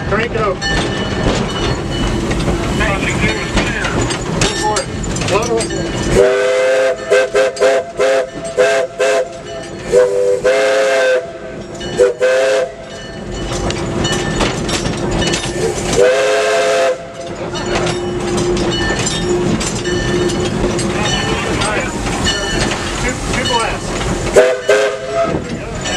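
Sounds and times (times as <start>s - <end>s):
steam locomotive chime whistle: 6.1s - 13.2s, 15.6s - 17.3s, 23.4s - 25.6s
steam hissing: 9.8s - 12.6s, 20.8s - 25.8s.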